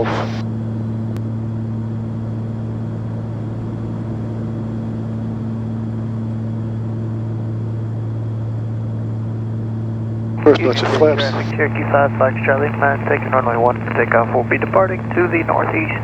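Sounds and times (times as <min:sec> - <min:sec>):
aircraft engines droning: 0:10.4 - 0:16.0.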